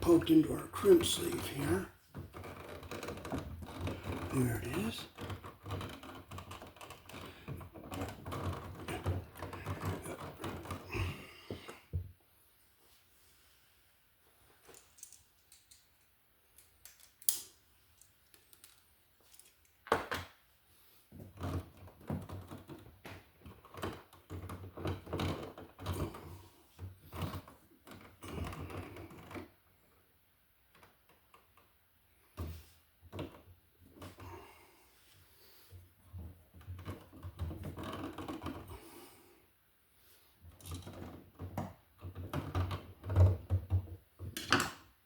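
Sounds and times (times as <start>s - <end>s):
clicks and clatter of wiring: 14.6s - 20.4s.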